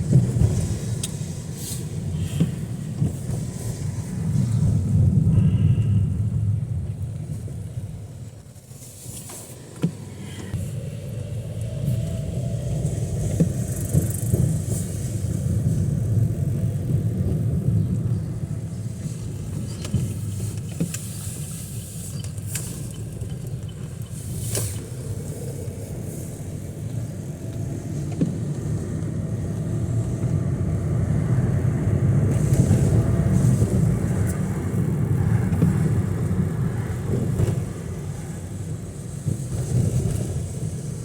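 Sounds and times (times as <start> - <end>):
car rumbling in traffic: 0.0 - 41.0
tires swishing on wet road: 0.0 - 41.0.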